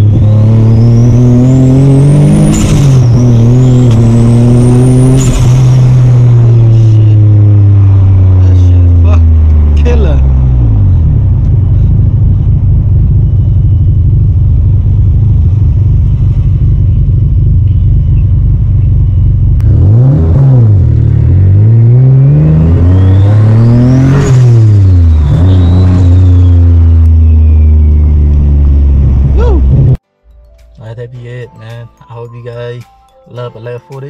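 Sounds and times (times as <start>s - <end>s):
car engine droning: 0.0s - 30.0s
turbo whistle: 24.8s - 28.2s.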